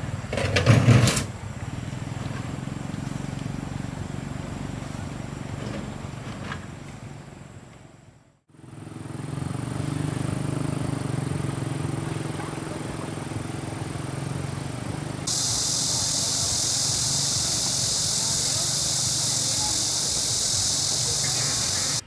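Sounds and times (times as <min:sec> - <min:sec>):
engine humming: 0:08.7 - 0:22.0
loud even hiss: 0:15.3 - 0:22.0.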